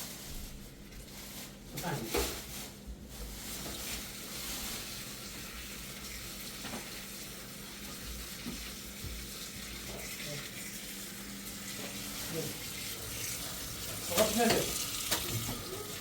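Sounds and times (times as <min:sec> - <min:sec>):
food sizzling in a pan: 0:03.6 - 0:16.0.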